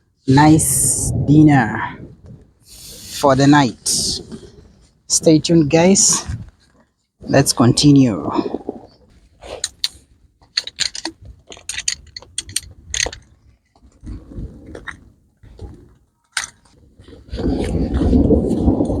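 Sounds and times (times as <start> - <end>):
camping gear clicks and rattles: 8.5 - 19.0.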